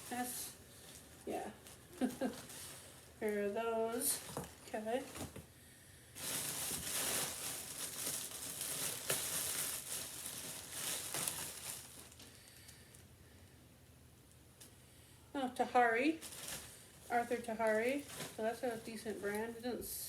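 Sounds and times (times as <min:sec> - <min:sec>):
clothes rustling: 0:00.0 - 0:05.4, 0:06.2 - 0:12.3, 0:15.7 - 0:19.8.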